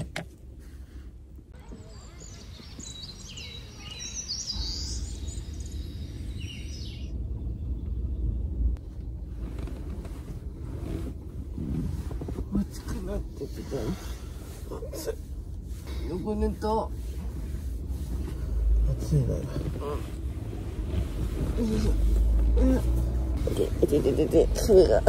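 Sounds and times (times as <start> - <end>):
low steady rumble: 0.0 - 25.0
small birds chirping: 1.6 - 8.7.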